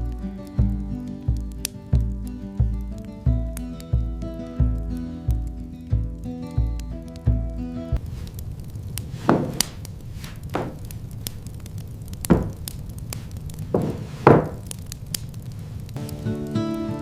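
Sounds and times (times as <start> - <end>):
chopping blows: 9.0 - 11.0, 12.2 - 15.4.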